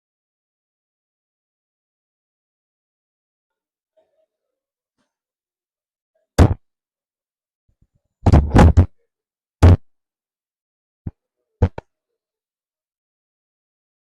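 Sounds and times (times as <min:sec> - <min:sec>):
sharp knocks and thumps: 0:06.4 - 0:06.6, 0:08.3 - 0:08.9, 0:09.6 - 0:09.8, 0:11.6 - 0:11.8.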